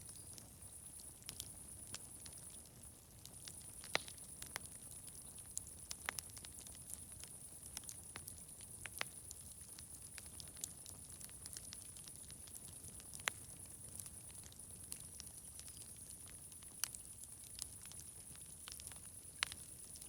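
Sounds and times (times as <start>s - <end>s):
fire crackling and popping: 0.0s - 20.0s.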